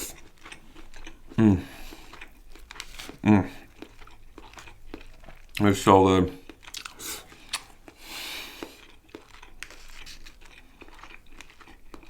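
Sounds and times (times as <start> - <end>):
chewing clicks: 1.9 - 5.7, 6.4 - 12.0
crinkling rustling: 9.3 - 11.6.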